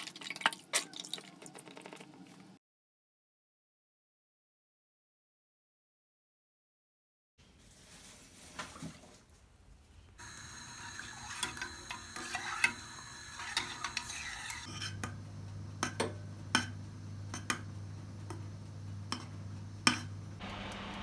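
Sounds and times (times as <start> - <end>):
steady low hum: 10.2 - 21.0.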